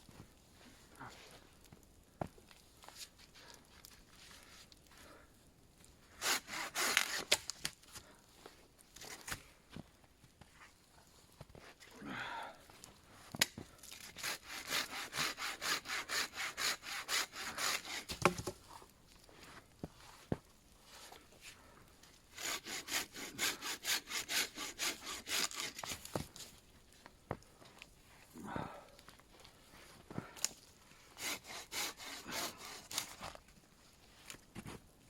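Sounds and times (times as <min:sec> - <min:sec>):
hand saw cutting wood: 0:06.2 - 0:07.5, 0:14.0 - 0:18.5, 0:22.4 - 0:26.2, 0:31.2 - 0:33.4.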